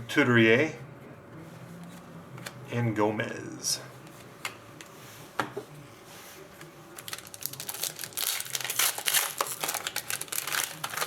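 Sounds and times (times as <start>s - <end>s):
plastic wrapper crinkling: 7.0s - 11.0s.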